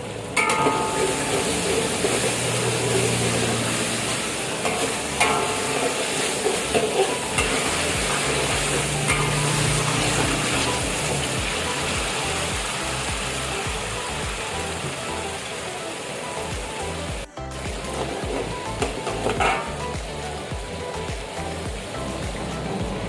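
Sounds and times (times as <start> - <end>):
food sizzling in a pan: 0.0 - 22.7
utensil clinking against pan: 4.6 - 9.9.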